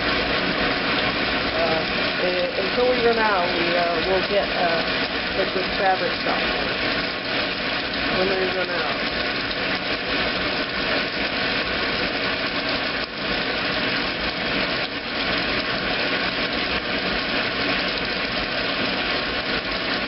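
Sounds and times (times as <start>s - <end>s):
washing machine running: 0.0s - 20.0s.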